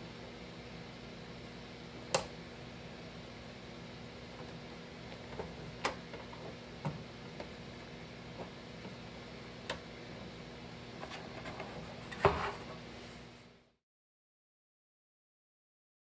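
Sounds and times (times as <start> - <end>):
faint steady hum: 0.0 - 13.8.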